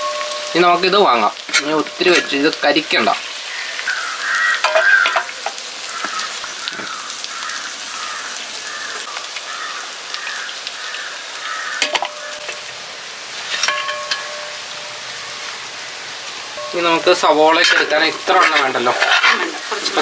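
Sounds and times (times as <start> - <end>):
chicken sizzling in hot oil: 0.0 - 20.0
spoon clinking against metal: 13.5 - 15.5, 16.6 - 19.6.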